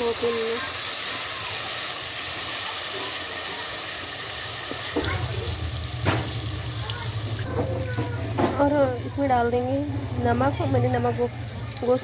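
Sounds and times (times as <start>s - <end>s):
vegetables sizzling in oil: 0.0s - 12.0s
sharp knocks: 6.0s - 6.4s.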